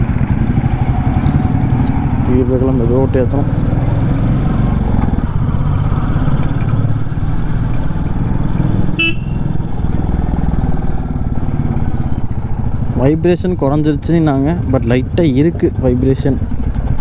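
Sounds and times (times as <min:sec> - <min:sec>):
motorcycle engine running: 0:00.0 - 0:17.0
horn toot: 0:09.0 - 0:09.5.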